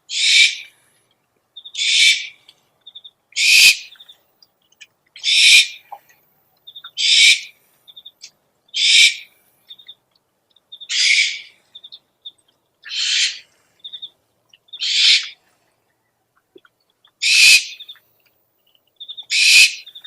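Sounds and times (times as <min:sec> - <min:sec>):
owl screeching: 0:00.1 - 0:00.7, 0:01.8 - 0:02.4, 0:03.4 - 0:03.9, 0:05.2 - 0:05.8, 0:07.0 - 0:07.5, 0:08.8 - 0:09.3, 0:10.9 - 0:11.6, 0:12.8 - 0:13.5, 0:14.8 - 0:15.4, 0:17.2 - 0:17.8, 0:19.3 - 0:19.9.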